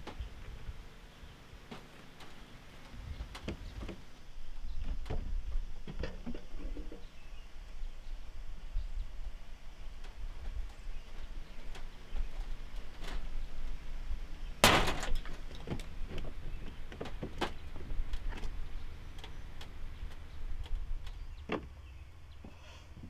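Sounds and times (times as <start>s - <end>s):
low steady rumble: 0.0s - 23.0s
loud clatter: 14.6s - 15.6s.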